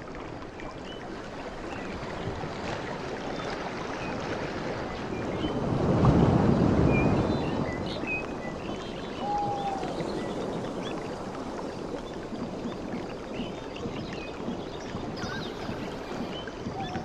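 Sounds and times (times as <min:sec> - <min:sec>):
sea water lapping and rushing: 0:00.0 - 0:17.0
whistled bird note: 0:09.1 - 0:10.0
bird chirps: 0:13.4 - 0:17.0.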